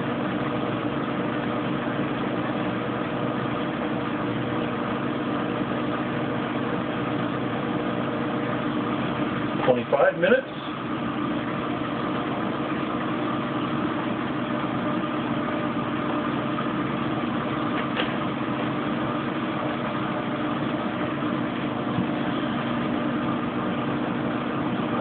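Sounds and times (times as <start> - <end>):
washing machine spinning: 0.0 - 25.0.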